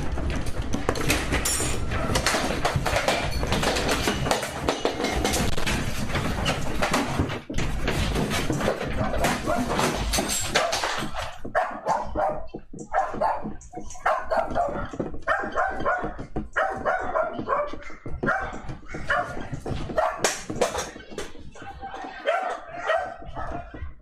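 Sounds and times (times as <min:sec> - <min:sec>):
dog barking: 0:09.0 - 0:10.0, 0:11.5 - 0:20.4, 0:22.2 - 0:23.8.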